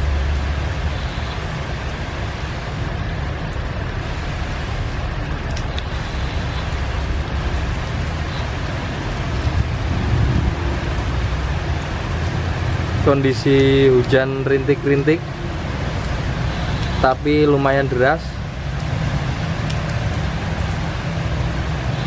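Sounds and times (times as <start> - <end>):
heavy rain falling: 0.0 - 22.0
low rumble of engines: 0.0 - 22.0
motorbike passing: 5.8 - 14.5.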